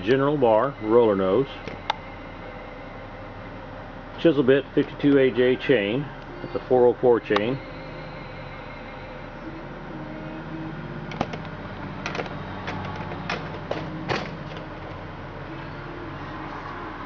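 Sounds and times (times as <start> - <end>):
steady low hum: 0.0 - 17.0
sharp clicks and knocks: 11.1 - 15.0.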